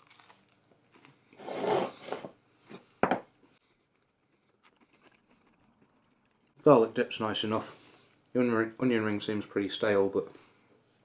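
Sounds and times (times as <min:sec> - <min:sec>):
person chewing: 0:03.7 - 0:06.6.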